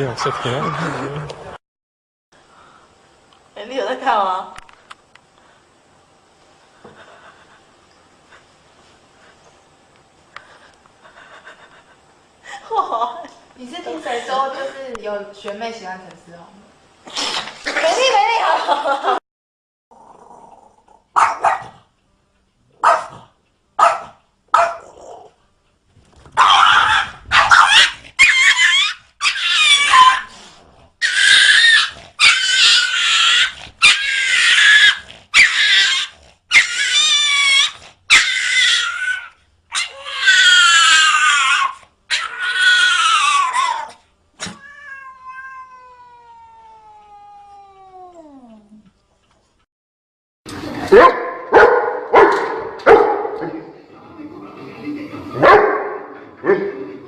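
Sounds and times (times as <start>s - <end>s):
cats yowling: 26.4s - 30.3s, 31.0s - 48.8s.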